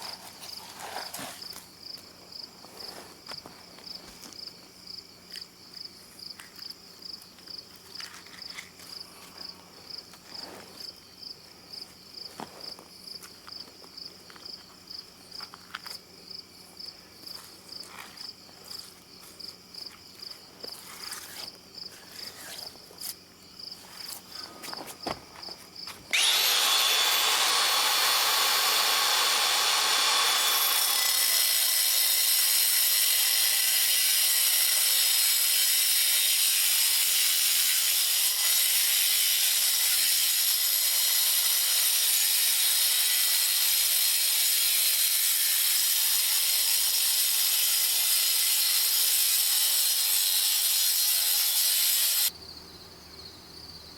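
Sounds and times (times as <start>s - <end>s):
crickets chirping: 0.0s - 26.1s, 52.3s - 53.9s
power tool with high hiss: 26.1s - 52.3s.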